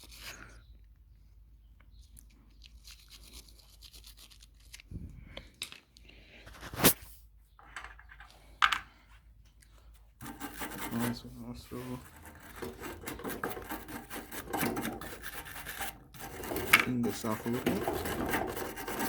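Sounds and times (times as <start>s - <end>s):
brush scrubbing: 2.8s - 4.8s, 10.2s - 19.0s.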